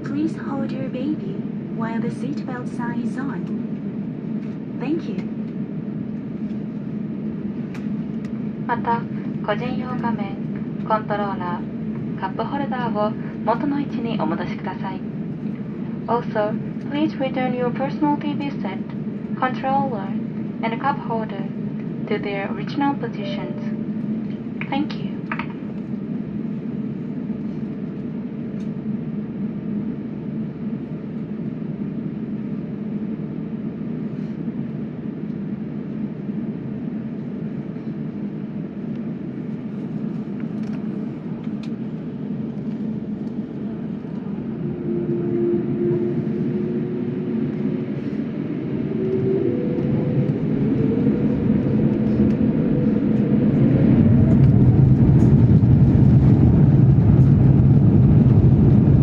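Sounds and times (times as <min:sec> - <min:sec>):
jet engines humming: 0:00.0 - 0:59.0
jet engines spooling up: 0:39.0 - 0:59.0.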